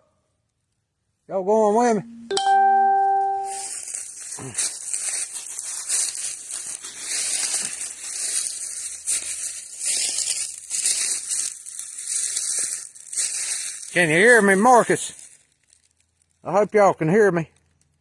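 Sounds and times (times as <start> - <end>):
footsteps crunching dry leaves: 3.3 - 16.3.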